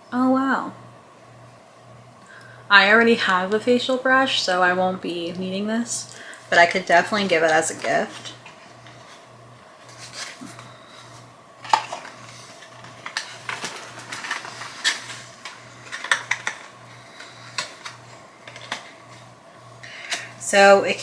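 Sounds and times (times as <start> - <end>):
box and plastic being handled: 9.8 - 19.3.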